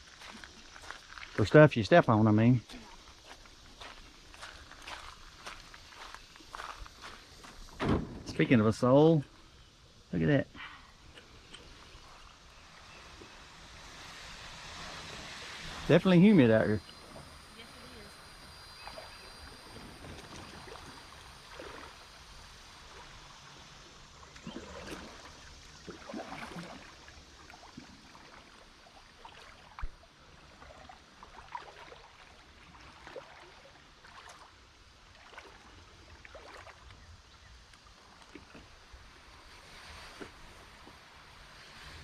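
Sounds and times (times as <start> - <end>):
water trickling: 0.0 - 38.9
kayak paddle splashes: 10.7 - 42.0.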